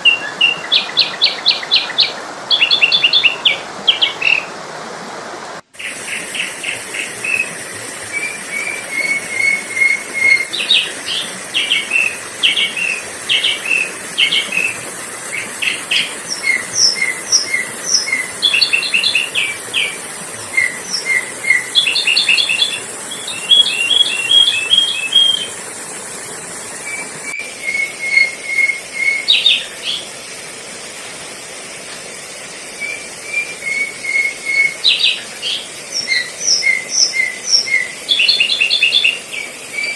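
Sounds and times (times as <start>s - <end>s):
steady high hiss: 0.0s - 39.9s
bulbul chirping calls: 20.6s - 25.6s.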